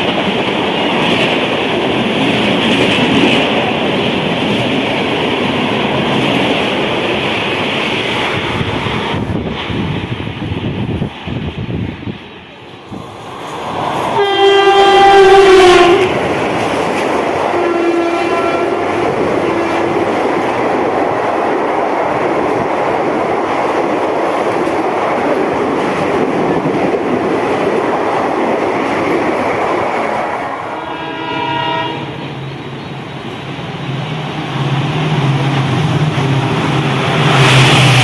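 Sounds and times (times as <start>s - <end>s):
train coaches rumbling and clacking: 0.0s - 38.0s
train horn: 14.1s - 16.2s, 17.4s - 20.2s, 30.6s - 32.2s.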